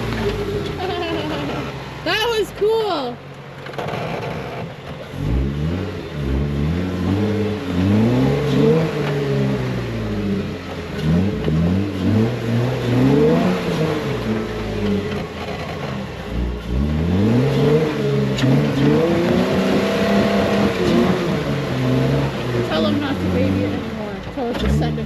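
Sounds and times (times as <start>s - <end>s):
off-road vehicle engine revving: 0.0s - 25.0s.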